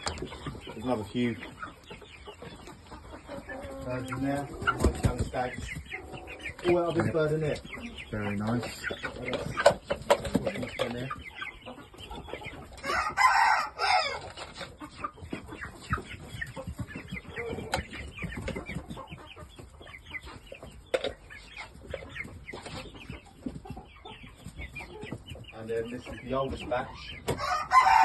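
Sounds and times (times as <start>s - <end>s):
chickens clucking and chirping: 0.0s - 28.0s
rooster crowing: 12.8s - 14.2s, 27.4s - 28.0s.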